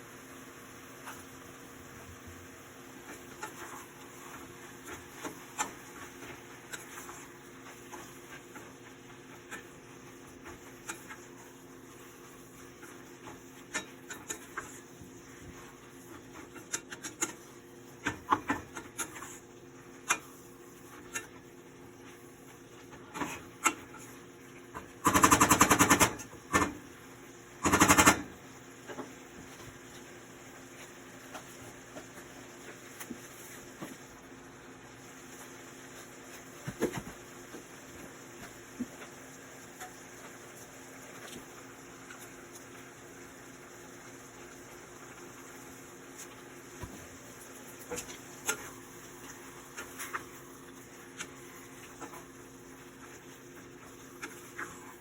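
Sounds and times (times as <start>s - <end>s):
scattered clicks and knocks: 25.0s - 26.8s, 27.6s - 28.3s.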